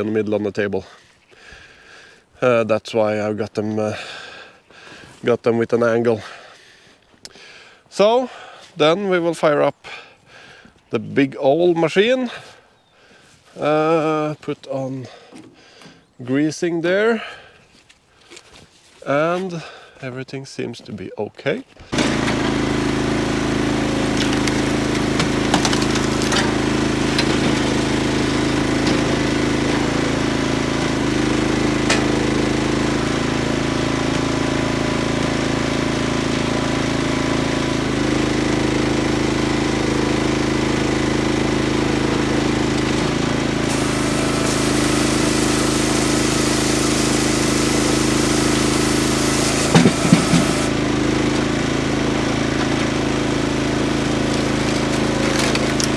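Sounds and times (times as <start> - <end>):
tractor engine running: 22.0 - 35.2, 37.8 - 55.9
hiss: 43.7 - 50.7.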